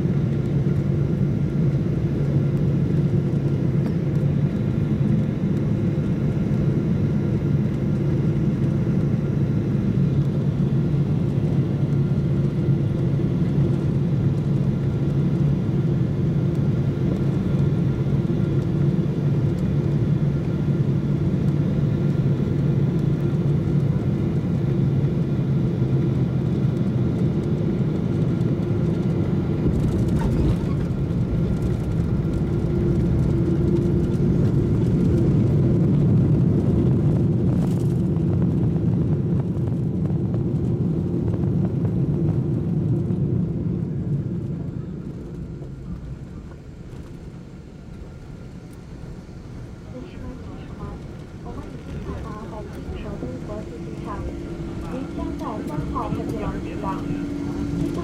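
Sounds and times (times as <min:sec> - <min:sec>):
airliner cabin engine rumble: 0:00.0 - 0:58.0
faint whining tones: 0:44.4 - 0:58.0.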